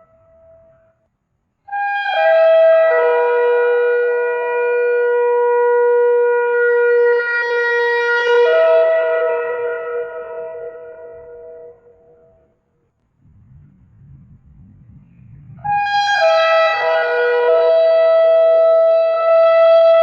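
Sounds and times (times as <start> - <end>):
shofar blast: 15.5 - 20.0.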